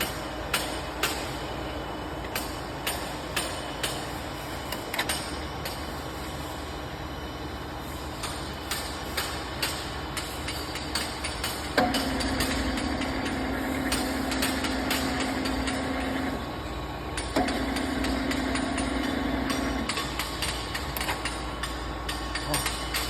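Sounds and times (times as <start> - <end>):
milling machine motor humming: 11.8 - 16.6, 17.4 - 19.9.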